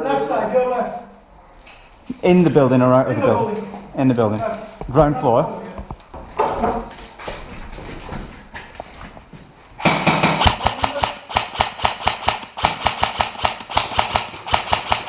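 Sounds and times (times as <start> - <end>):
airsoft gun shots: 9.8 - 15.0.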